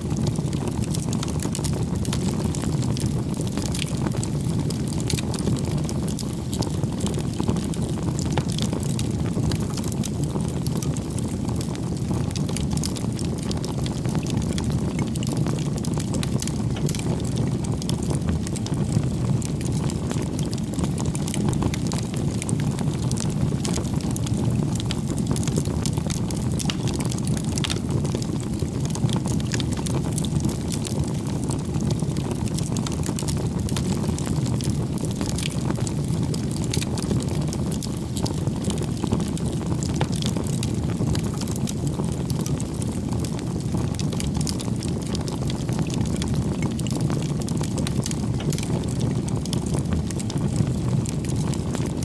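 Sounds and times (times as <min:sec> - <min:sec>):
campfire crackling: 0:00.0 - 0:52.0.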